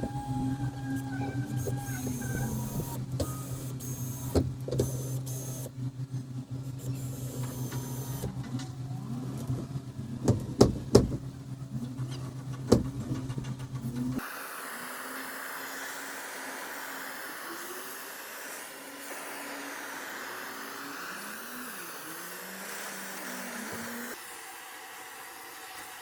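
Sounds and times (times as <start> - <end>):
motor humming: 0.0 - 26.0
steady hiss: 14.2 - 26.0.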